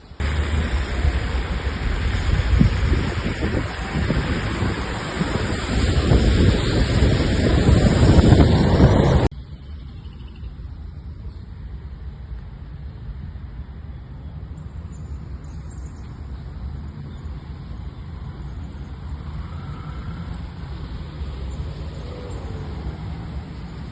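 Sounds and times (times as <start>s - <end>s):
road traffic rumble: 0.0s - 23.9s.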